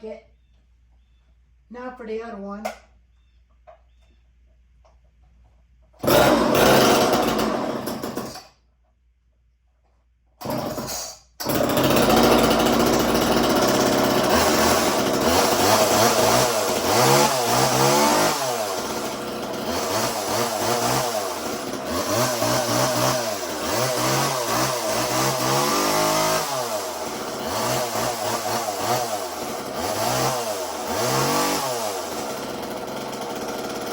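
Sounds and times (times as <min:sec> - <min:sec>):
chainsaw starting and revving: 0:06.0 - 0:08.6, 0:10.4 - 0:33.9.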